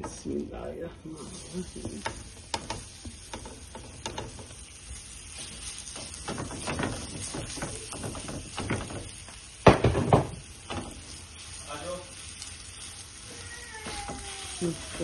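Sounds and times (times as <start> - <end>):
food sizzling in a pan: 0.0 - 15.0
utensil clicking and scraping pan: 1.7 - 9.3.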